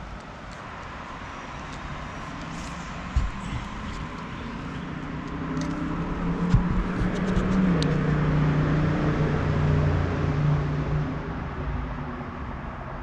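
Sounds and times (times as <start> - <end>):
vehicle engine passing by: 2.1 - 11.4.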